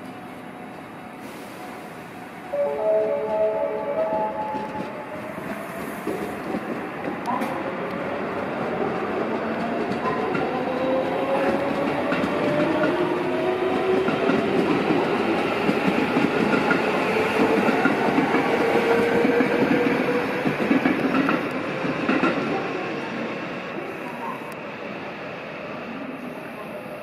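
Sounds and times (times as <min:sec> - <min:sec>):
electric train whine: 0:00.0 - 0:07.3.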